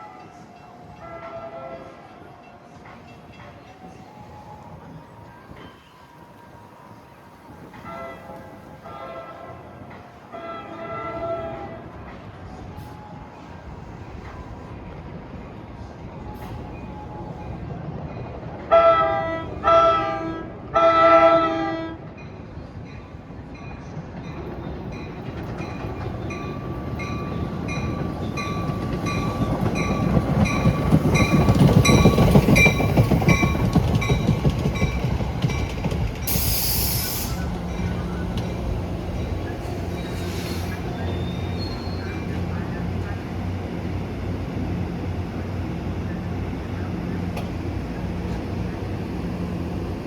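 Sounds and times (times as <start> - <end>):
train rumbling: 0.0 - 50.0
train horn blasts: 1.0 - 2.1, 7.8 - 12.0, 18.7 - 22.1
wheels clacking over rail joints: 24.2 - 50.0
air hiss: 36.2 - 37.7, 40.0 - 41.0.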